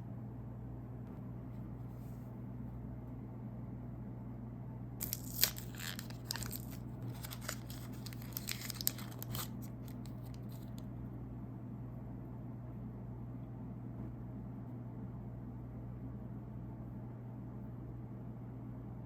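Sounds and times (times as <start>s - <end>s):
steady low hum: 0.0s - 19.0s
faint crackles: 5.0s - 10.8s
snack wrapper crinkling and tearing: 5.0s - 10.8s.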